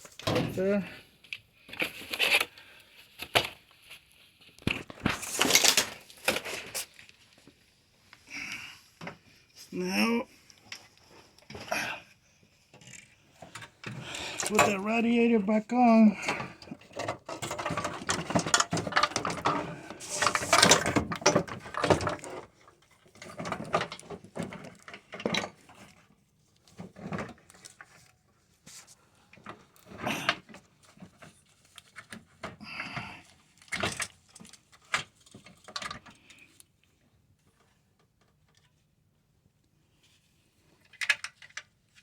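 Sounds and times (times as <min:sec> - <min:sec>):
car radiator parts clattering: 0:16.2 - 0:22.5.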